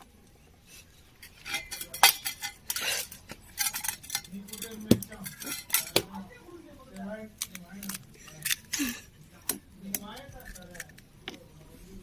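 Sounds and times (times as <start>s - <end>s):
utensil clinking against bowl: 1.2s - 6.1s.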